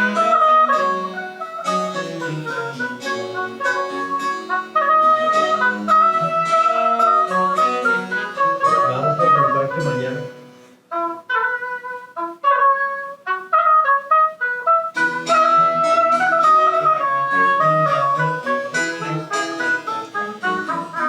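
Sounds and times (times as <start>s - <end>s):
baroque chamber ensemble: 0.0s - 10.6s, 15.0s - 21.0s
high woodwind melody: 0.0s - 21.0s.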